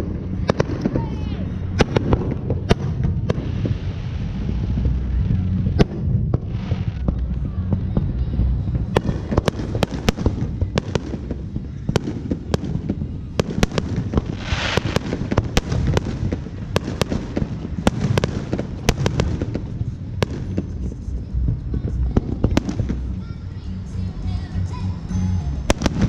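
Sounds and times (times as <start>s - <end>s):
fireworks cracking and popping: 0.0s - 23.4s, 25.7s - 26.0s
rumble of fireworks booms: 0.0s - 23.6s, 25.6s - 26.0s
short hiss: 14.4s - 15.0s.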